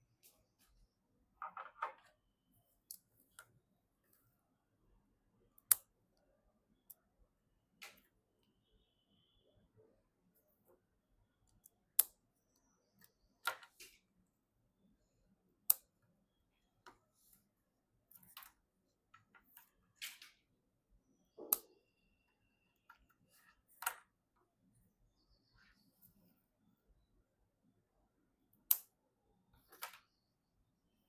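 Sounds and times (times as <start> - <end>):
sharp clicks of computer hardware: 21.4 - 21.9, 28.6 - 29.0.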